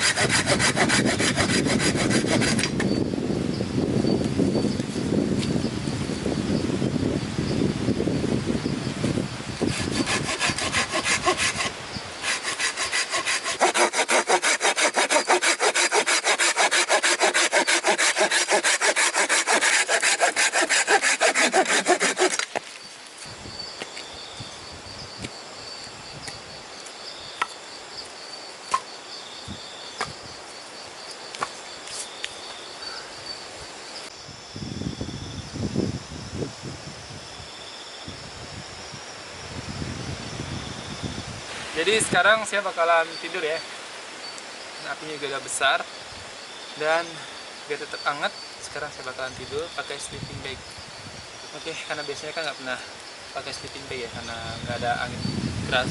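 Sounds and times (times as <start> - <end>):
hand saw cutting wood: 0.0 - 2.8, 9.7 - 22.6
insect buzz: 0.0 - 55.9.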